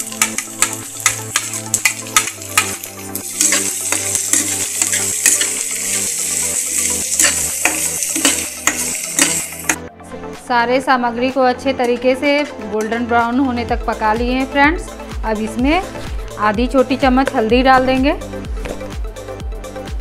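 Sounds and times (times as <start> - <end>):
onions sizzling in hot oil: 0.0 - 9.8
soft background music: 0.0 - 20.0
spatula scraping the pan: 3.2 - 5.9, 6.7 - 9.7.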